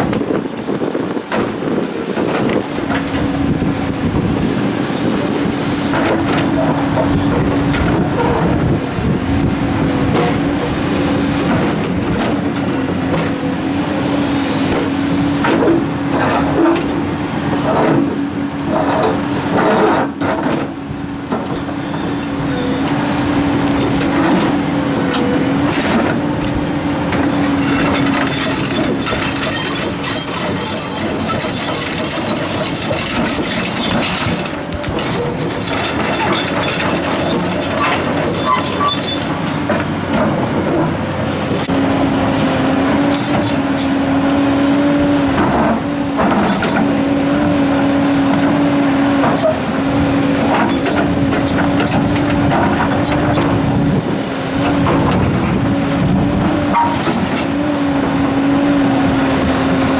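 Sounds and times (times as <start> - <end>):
excavator hydraulic whine: 0.0 - 59.9.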